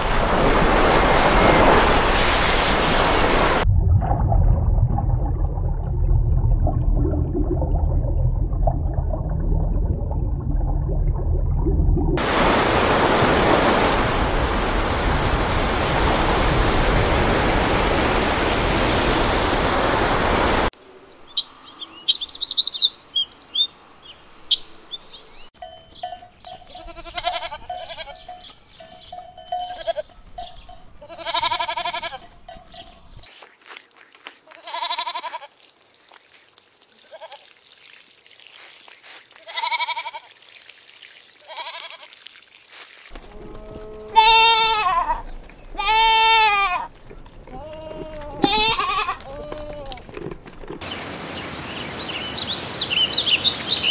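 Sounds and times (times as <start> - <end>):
rushing underwater noise: 0.0 - 20.7
bird chirps: 21.1 - 26.9, 27.7 - 30.9, 32.4 - 33.4
goats bleating: 26.7 - 28.3, 29.4 - 30.4, 31.0 - 32.4, 34.4 - 35.6, 37.0 - 37.5, 39.4 - 40.3, 41.4 - 42.2, 43.2 - 50.2.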